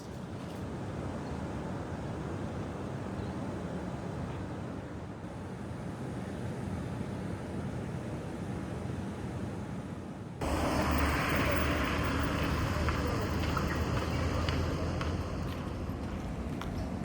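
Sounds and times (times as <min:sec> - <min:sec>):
vehicle low rumble: 0:10.4 - 0:17.0.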